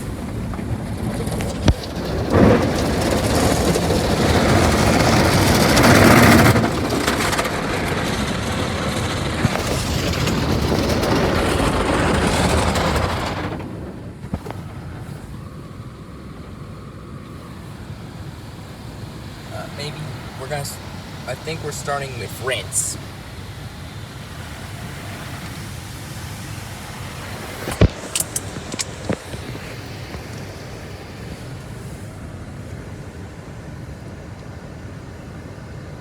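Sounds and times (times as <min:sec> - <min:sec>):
steady hum: 0:14.2 - 0:25.4.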